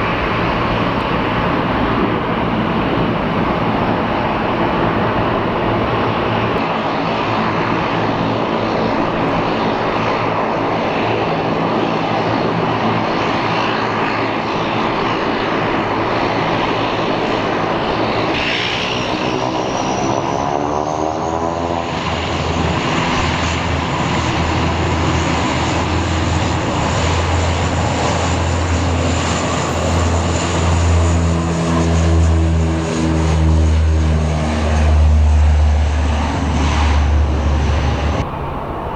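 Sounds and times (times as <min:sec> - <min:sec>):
turboprop engine drone: 0:00.0 - 0:38.9
rising engine whine: 0:15.0 - 0:38.9
deep propeller throb: 0:23.4 - 0:38.9.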